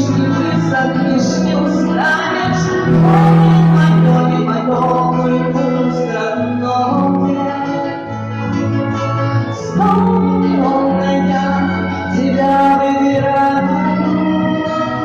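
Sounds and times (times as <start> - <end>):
acoustic guitar: 2.8 - 5.7
bass line: 2.8 - 6.0
person singing: 2.9 - 5.7.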